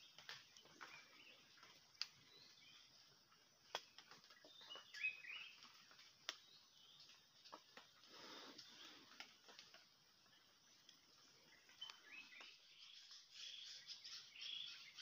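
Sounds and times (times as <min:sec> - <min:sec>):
faint bird chirps: 0:00.0 - 0:15.0
faint sharp clicks: 0:01.6 - 0:02.2, 0:03.6 - 0:04.9, 0:05.6 - 0:09.9, 0:11.8 - 0:12.6.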